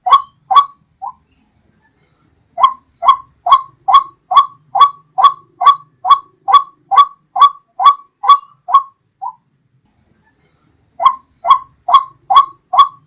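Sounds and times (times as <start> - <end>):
waterhen harsh calls: 0.0 - 1.2, 2.6 - 9.4, 11.0 - 13.0.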